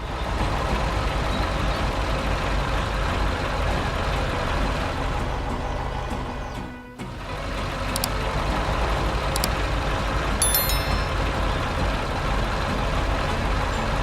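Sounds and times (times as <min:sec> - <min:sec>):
heavy truck engine running: 0:00.0 - 0:14.0
high chiming tones: 0:10.4 - 0:11.4.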